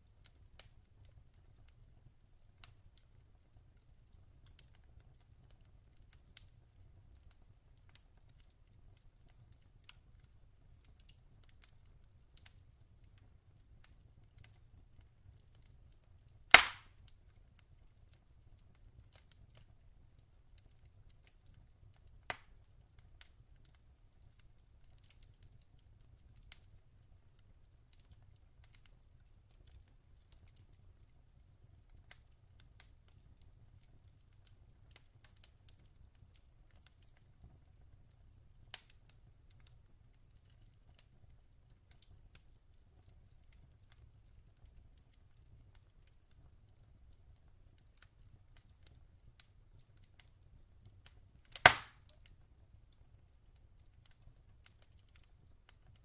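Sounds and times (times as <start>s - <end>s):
log fire crackling: 0.0s - 56.0s
loud sharp pop from fire: 16.5s - 17.0s, 22.3s - 22.5s, 51.5s - 52.1s.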